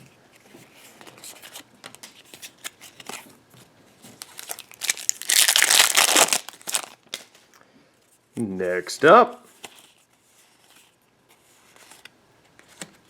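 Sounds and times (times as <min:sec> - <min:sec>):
foil wrapper tearing open: 0:04.2 - 0:07.0.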